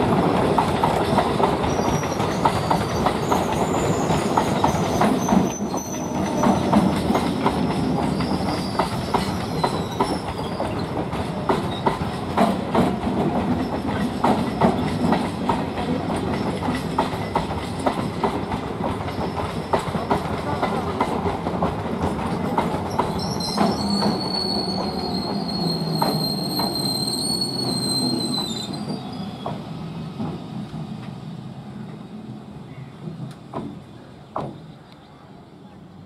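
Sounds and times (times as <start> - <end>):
wheels clacking over rail joints: 0.0 - 27.0
train rumbling past: 0.0 - 36.0
high wheel squeal: 1.6 - 6.8, 8.0 - 11.0, 22.9 - 29.7.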